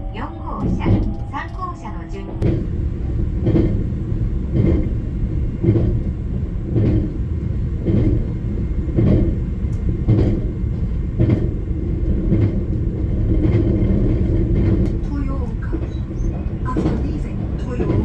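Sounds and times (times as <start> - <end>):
train interior rumble: 0.0 - 18.0
wheels clacking over rail joints: 2.4 - 18.0.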